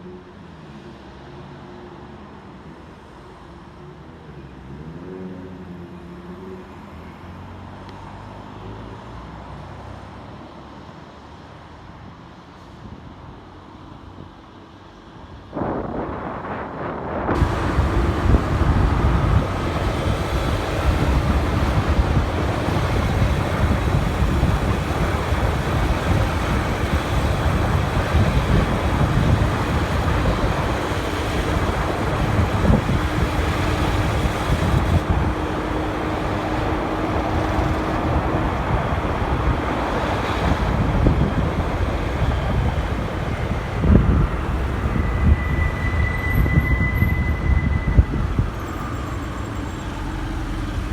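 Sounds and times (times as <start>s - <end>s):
road and traffic noise: 0.0s - 50.9s
wind rushing over microphone: 15.1s - 50.9s
motorcycle engine hum: 17.3s - 45.2s.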